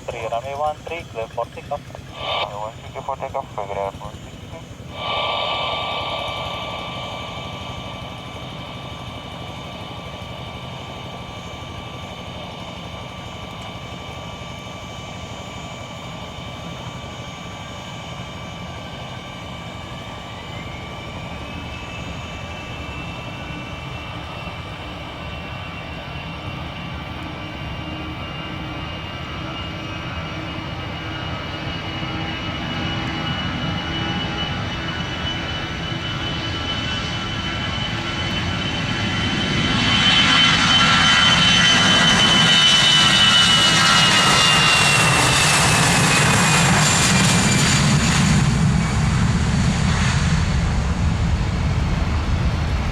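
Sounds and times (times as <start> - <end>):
aircraft engines rumbling and whining: 0.0 - 52.9.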